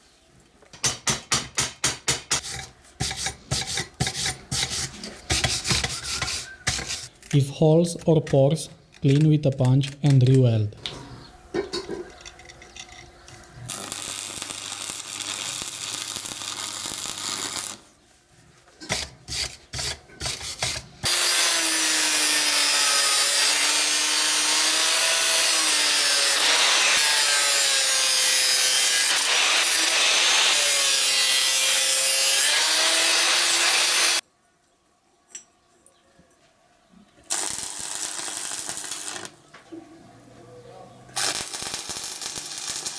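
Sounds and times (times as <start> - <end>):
angle grinder grinding steel: 20.2 - 34.2.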